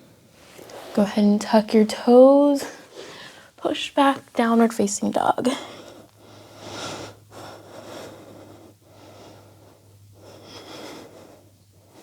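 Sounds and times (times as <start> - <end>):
faint low hum: 0.0 - 12.0
person breathing slowly: 2.8 - 3.6, 5.6 - 12.0.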